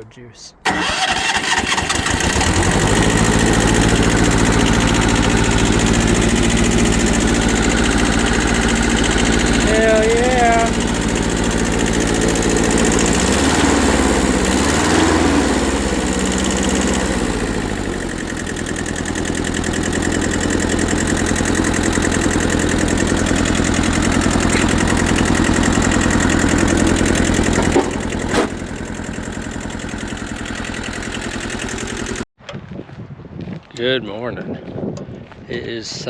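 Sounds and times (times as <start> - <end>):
small diesel engine running: 0.6 - 32.3
sharp engine knocks: 23.2 - 28.7.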